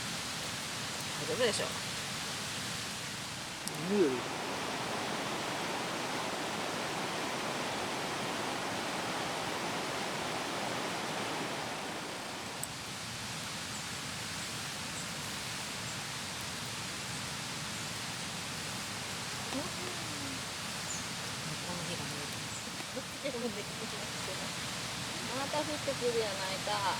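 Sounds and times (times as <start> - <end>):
rain hissing: 0.0 - 26.9.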